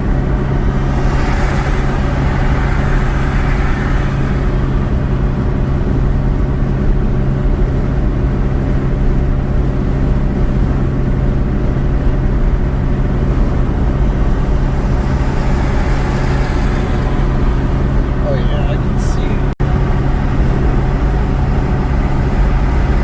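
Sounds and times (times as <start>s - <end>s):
car road and engine drone: 0.0s - 23.0s.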